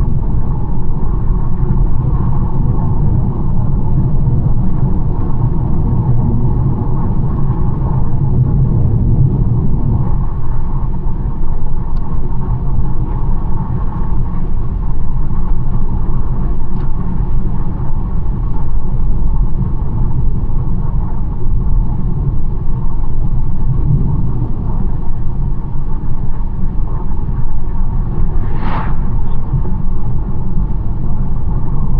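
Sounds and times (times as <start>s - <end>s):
car engine and tyre road noise: 27.6s - 30.8s.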